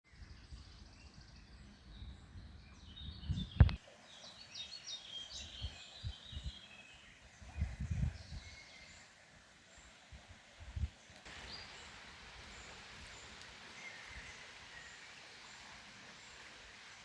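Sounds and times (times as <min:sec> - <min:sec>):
songbirds chirping: 0:00.1 - 0:10.2, 0:10.8 - 0:17.0.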